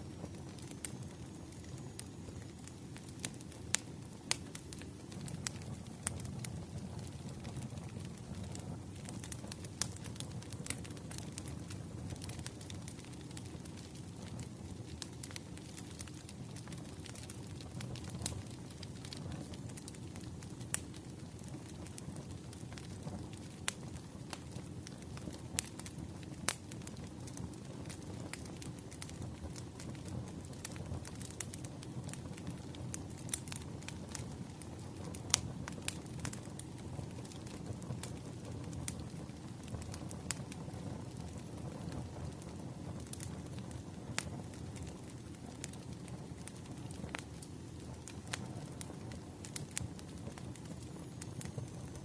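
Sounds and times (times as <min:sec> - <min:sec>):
firewood crackling and popping: 0:00.0 - 0:52.0.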